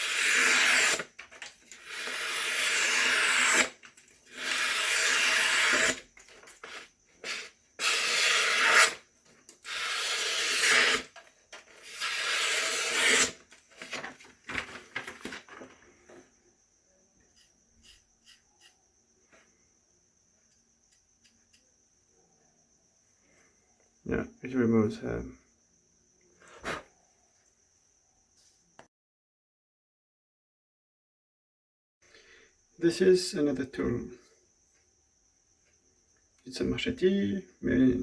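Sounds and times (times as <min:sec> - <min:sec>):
knife slicing paper: 0:00.0 - 0:01.1, 0:01.7 - 0:06.0, 0:06.6 - 0:09.0, 0:09.6 - 0:11.1, 0:11.8 - 0:14.6
paper rustling: 0:13.0 - 0:16.2.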